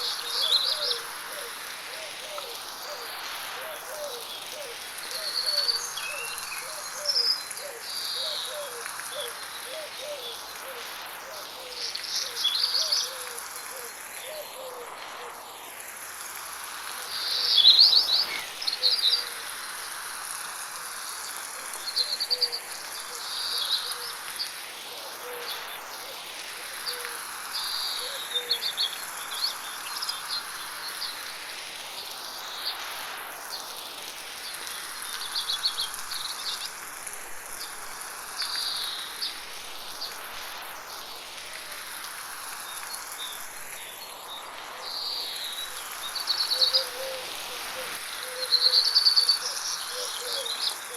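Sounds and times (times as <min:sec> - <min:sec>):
birds singing: 0:00.0 - 0:03.0, 0:04.0 - 0:10.6, 0:42.7 - 0:50.9
low repeated bird call: 0:00.0 - 0:15.5, 0:44.9 - 0:50.9
light rain hiss: 0:00.0 - 0:50.9.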